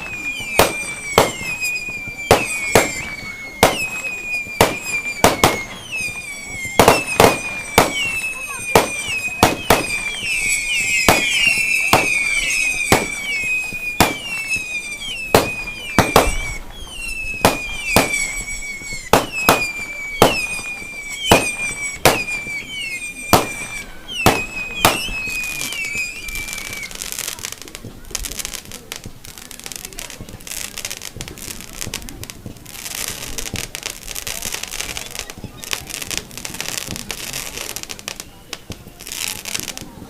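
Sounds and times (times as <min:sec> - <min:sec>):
falling firework whistles: 0:00.0 - 0:40.0
firework bangs: 0:00.0 - 0:40.0
firework crackling: 0:00.0 - 0:40.0.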